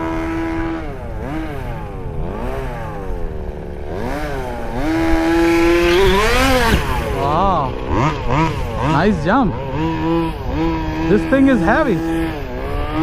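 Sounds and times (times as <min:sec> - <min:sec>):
small two-stroke engine revving: 0:00.0 - 0:13.0.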